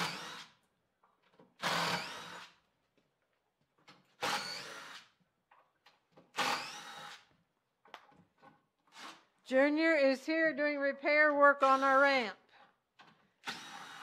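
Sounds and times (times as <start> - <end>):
power drill-driver running: 1.6 - 2.6, 6.4 - 7.3, 13.4 - 14.0.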